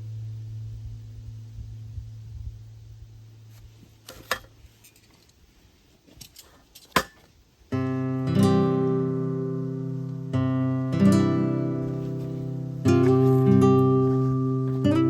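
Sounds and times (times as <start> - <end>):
acoustic guitar strummed chords: 7.7 - 15.0.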